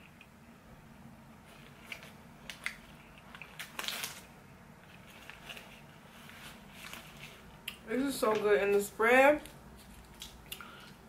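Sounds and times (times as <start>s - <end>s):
person chewing a burger: 9.8s - 11.0s.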